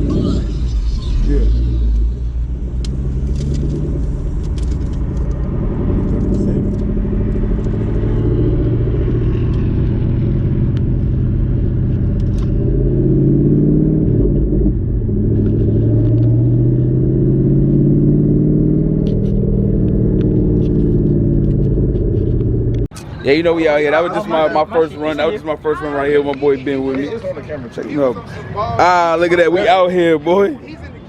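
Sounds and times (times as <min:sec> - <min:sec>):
car engine running at low revs: 0:00.0 - 0:22.9.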